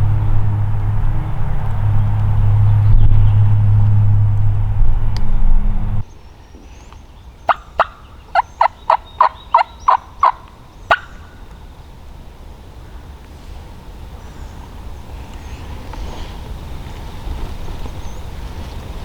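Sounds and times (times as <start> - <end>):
turkey yelping: 7.5 - 11.3.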